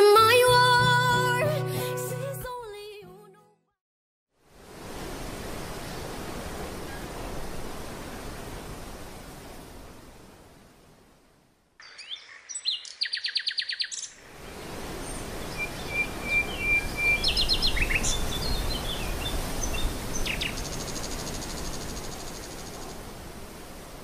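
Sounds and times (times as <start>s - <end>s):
outdoor hiss: 4.4s - 24.0s
songbirds singing: 11.8s - 14.2s, 15.0s - 22.9s.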